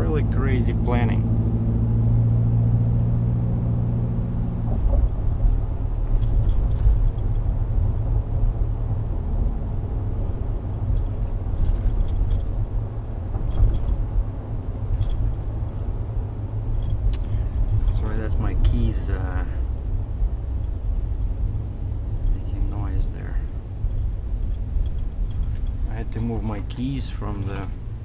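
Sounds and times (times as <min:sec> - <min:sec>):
low road rumble: 0:00.0 - 0:28.0
pickup engine hum: 0:00.0 - 0:28.0
keys jingling: 0:06.1 - 0:07.2, 0:13.4 - 0:14.0, 0:23.9 - 0:27.9.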